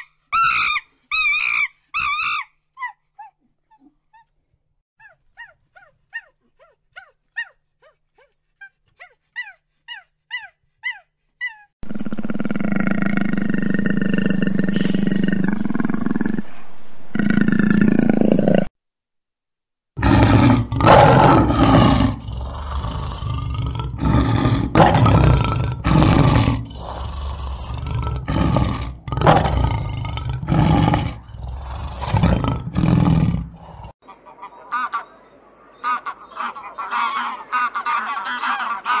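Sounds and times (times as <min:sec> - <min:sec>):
jaguar growling: 0:11.8 - 0:16.5, 0:20.0 - 0:34.0
lion roaring: 0:11.8 - 0:18.7, 0:20.0 - 0:34.0.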